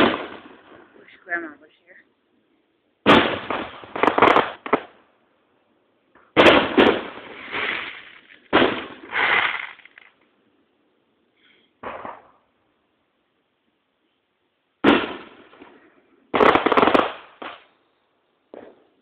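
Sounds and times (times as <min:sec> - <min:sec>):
firework shells booming: 0:00.0 - 0:00.9, 0:03.0 - 0:05.0, 0:06.1 - 0:10.1, 0:11.8 - 0:12.5, 0:14.8 - 0:17.7.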